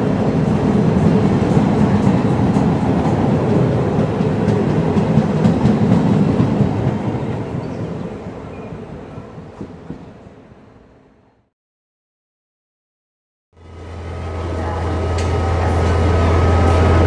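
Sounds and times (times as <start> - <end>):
passenger train rumbling: 0.0 - 11.5, 13.6 - 17.0
train clicks: 0.4 - 7.4.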